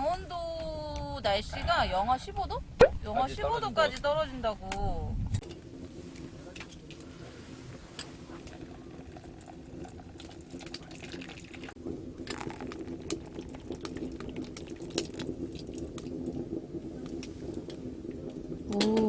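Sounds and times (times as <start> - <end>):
sharp crackles and clicks: 3.9 - 19.0
water: 4.9 - 19.0.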